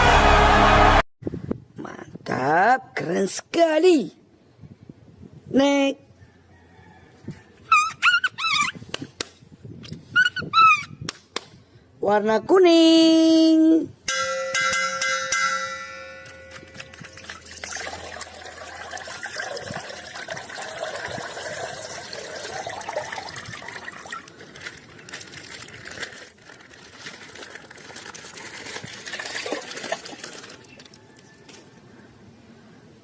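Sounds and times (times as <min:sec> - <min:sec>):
packaging rustling and crinkling: 0:24.0 - 0:31.4.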